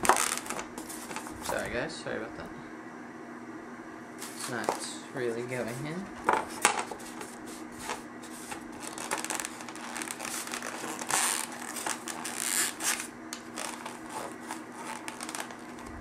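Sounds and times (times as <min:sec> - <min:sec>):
cardboard packaging rustling: 0:00.0 - 0:01.6, 0:05.6 - 0:16.0
faint steady hum: 0:00.0 - 0:16.0.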